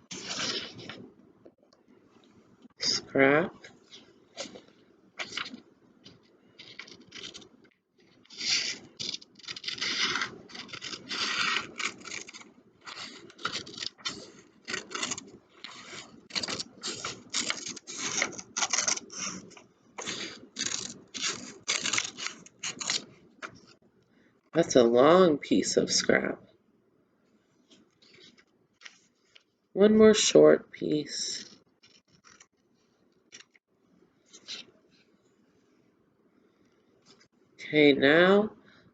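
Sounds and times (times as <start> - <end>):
scissors snipping paper: 6.6 - 7.5, 8.3 - 23.7.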